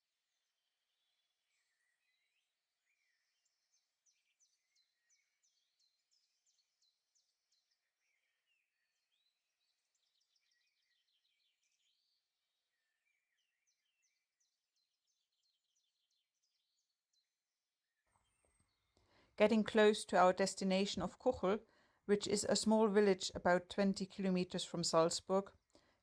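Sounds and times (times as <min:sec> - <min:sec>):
faint birds chirping and trilling: 0:00.4 - 0:17.3.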